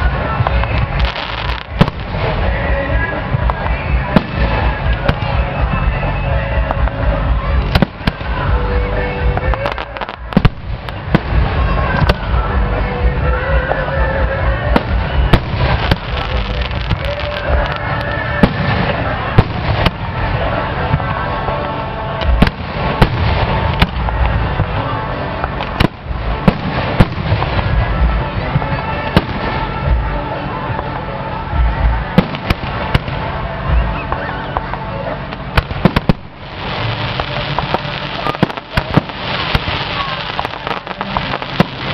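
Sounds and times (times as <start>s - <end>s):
fireworks pops and rumble: 0.0s - 13.9s, 14.6s - 30.1s, 31.8s - 41.9s
fireworks bangs: 0.0s - 30.3s, 31.6s - 41.9s.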